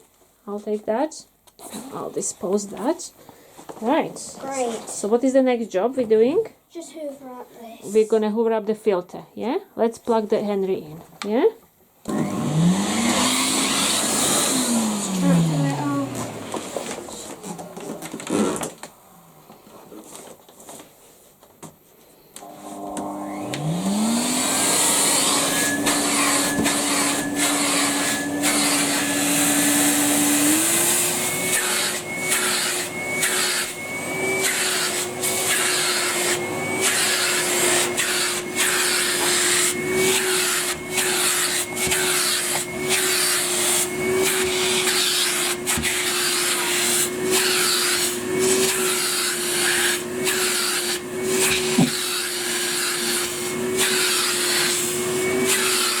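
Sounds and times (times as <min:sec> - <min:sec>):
vacuum cleaner running: 0:12.0 - 0:18.6, 0:22.4 - 0:56.0.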